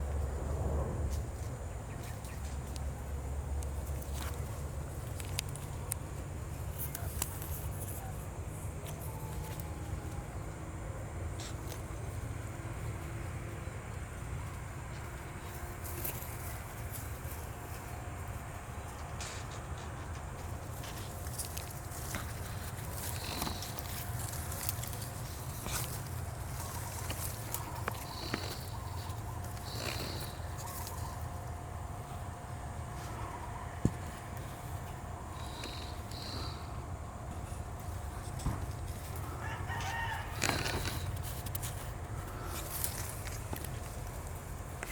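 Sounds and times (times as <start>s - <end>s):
steady low rumble: 0.0s - 6.8s.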